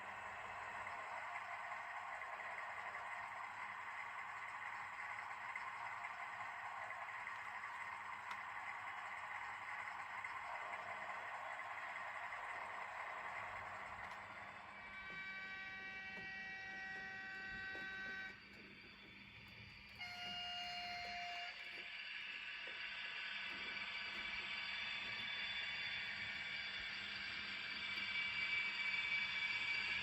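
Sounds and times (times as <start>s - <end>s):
model locomotive horn: 14.5s - 18.5s, 19.9s - 22.0s.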